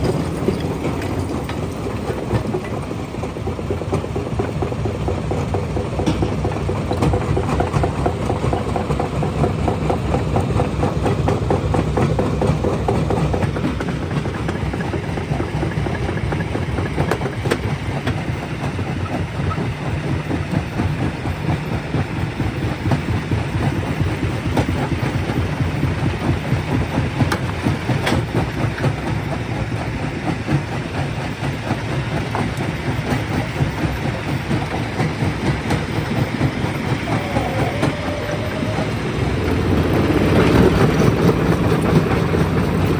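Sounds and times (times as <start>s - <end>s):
rock crusher rumbling: 35.2s - 42.9s.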